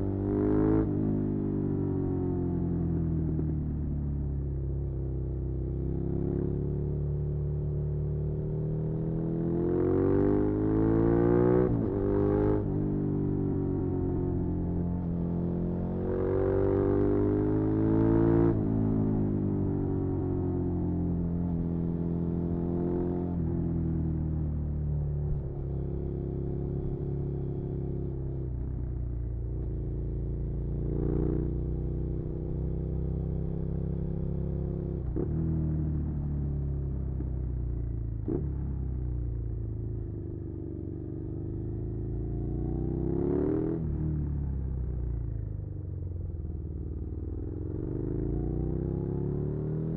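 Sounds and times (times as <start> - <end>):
motorcycle engine accelerating: 29.4 - 49.9.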